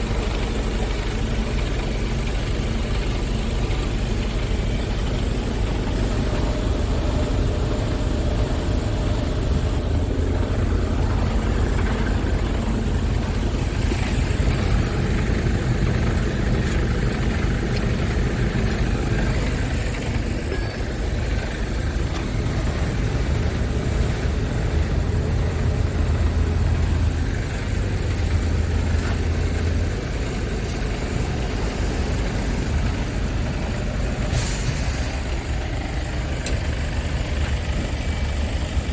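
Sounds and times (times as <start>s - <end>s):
truck engine idling: 0.0s - 38.9s.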